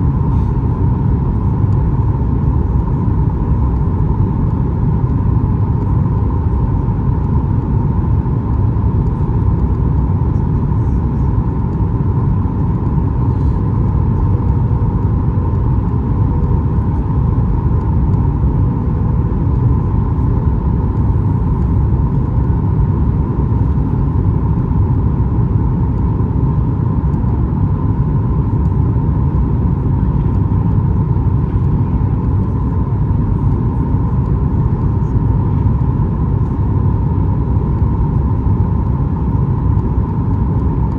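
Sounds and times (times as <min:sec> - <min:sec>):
airplane cabin rumble: 0:00.0 - 0:40.9
constant hum: 0:00.0 - 0:40.9.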